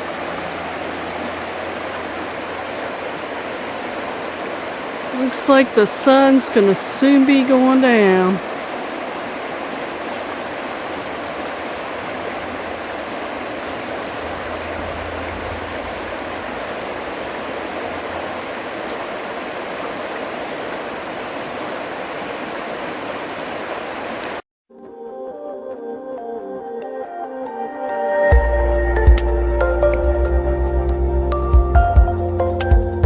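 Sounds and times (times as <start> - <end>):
stream running over rocks: 0.0 - 24.4
soft ambient music: 24.8 - 33.0.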